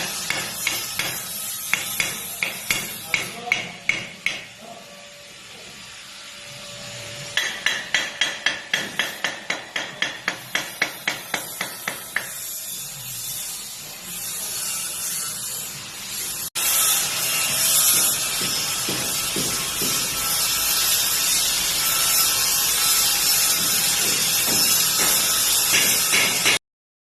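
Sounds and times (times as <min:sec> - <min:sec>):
hammer striking metal: 0:00.0 - 0:04.6, 0:07.3 - 0:12.6, 0:17.3 - 0:20.5, 0:23.4 - 0:26.6.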